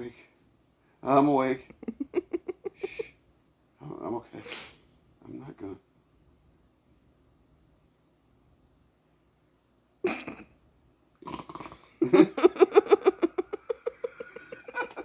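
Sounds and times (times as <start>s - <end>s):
high-pitched giggling laughter: 1.8s - 3.1s, 12.0s - 15.0s
person snorting: 4.4s - 4.8s, 10.1s - 10.5s, 11.2s - 12.0s.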